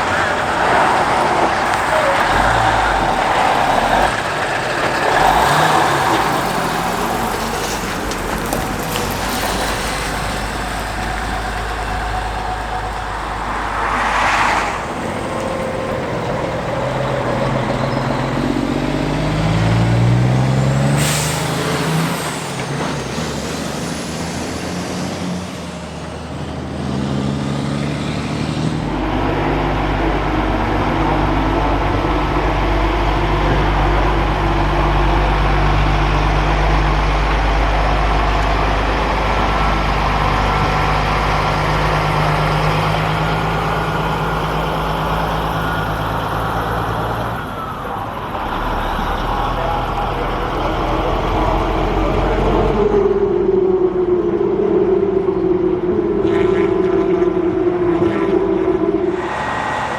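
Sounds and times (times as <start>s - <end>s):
truck diesel engine running: 0.0s - 56.2s, 56.8s - 59.9s
air brake hisses: 21.0s - 22.6s.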